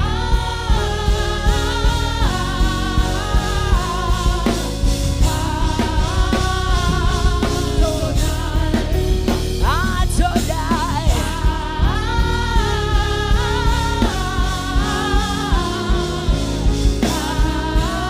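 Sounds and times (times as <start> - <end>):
band playing: 0.0 - 18.0
drum kit beat: 0.0 - 18.0
person singing: 5.3 - 18.0.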